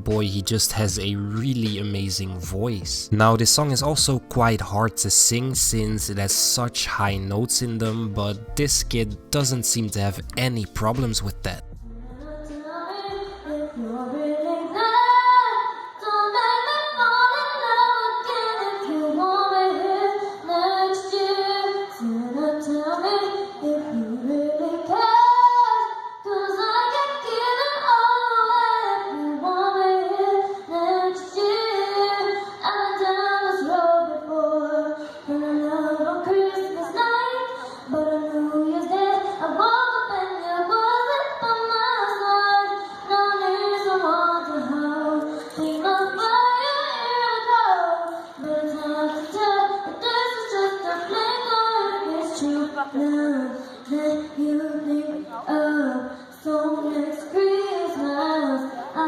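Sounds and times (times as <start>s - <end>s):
boy singing in a high voice: 12.5s - 59.0s.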